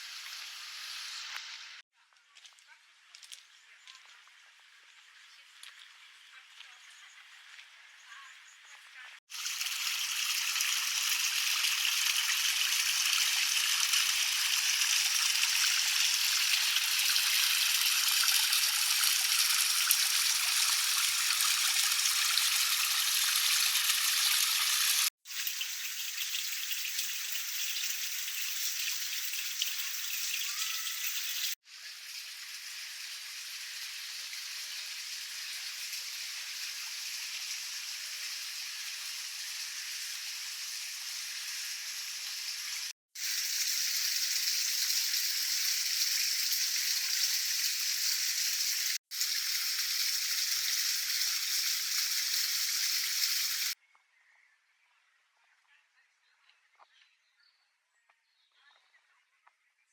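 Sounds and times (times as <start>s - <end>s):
running splashing water: 9.3s - 53.8s.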